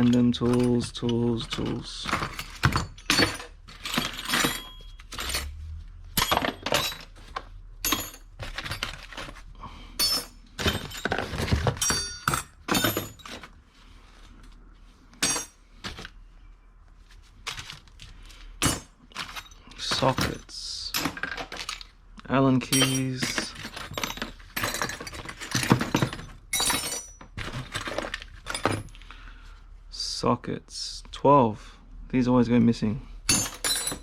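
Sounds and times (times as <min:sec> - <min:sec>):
metal hand tools clinking: 0:00.0 - 0:05.6, 0:10.0 - 0:13.5, 0:15.2 - 0:15.6, 0:22.6 - 0:27.2, 0:33.3 - 0:34.0.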